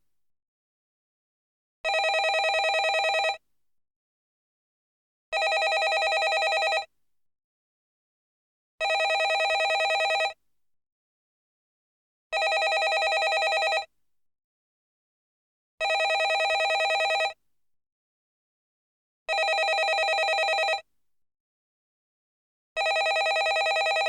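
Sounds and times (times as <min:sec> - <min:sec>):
landline telephone ringing: 0:01.9 - 0:03.4, 0:05.4 - 0:06.9, 0:08.8 - 0:10.4, 0:12.4 - 0:13.9, 0:15.8 - 0:17.4, 0:19.3 - 0:20.8, 0:22.8 - 0:24.0.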